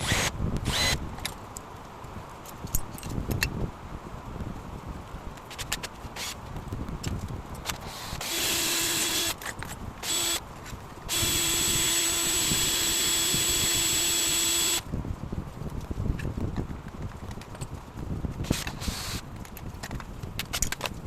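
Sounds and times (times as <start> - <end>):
power drill motor running: 0.0 - 1.0, 7.8 - 9.4, 10.0 - 10.4, 11.1 - 14.8, 18.4 - 19.2.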